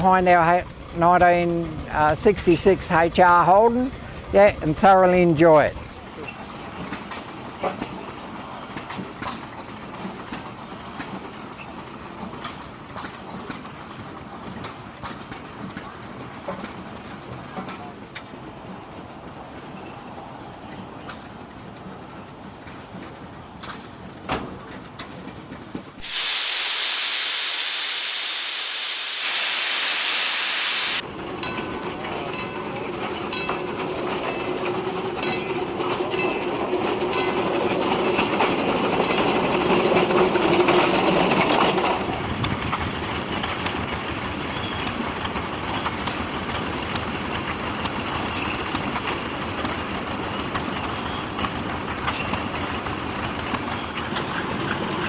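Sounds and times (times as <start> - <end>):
steam engine mechanical clicking: 0.2 - 18.8, 20.7 - 25.9, 31.4 - 55.0
steam engine hissing steam: 26.0 - 31.2.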